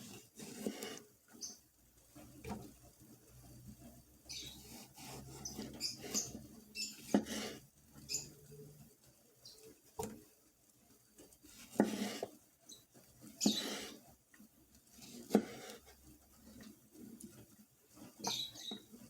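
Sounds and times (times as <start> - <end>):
high squeaks from rubbing: 4.3 - 8.3.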